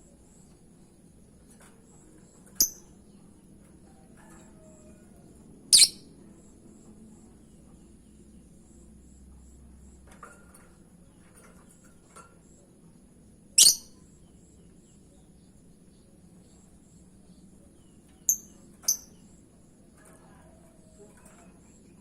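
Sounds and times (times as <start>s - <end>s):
faint bird chirps: 5.7s - 10.0s, 13.5s - 22.0s.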